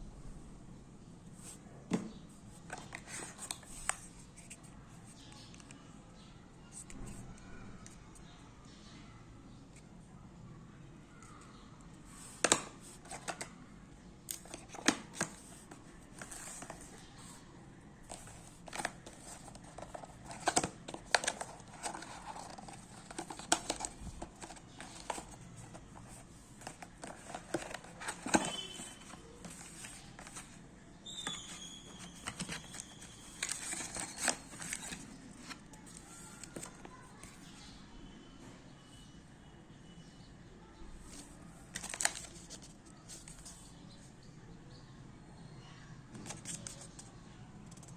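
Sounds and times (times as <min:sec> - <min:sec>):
plastic and cardboard crinkling: 0:02.5 - 0:05.6, 0:12.1 - 0:13.5, 0:14.3 - 0:17.4, 0:18.0 - 0:37.4, 0:41.1 - 0:43.7, 0:46.1 - 0:47.1.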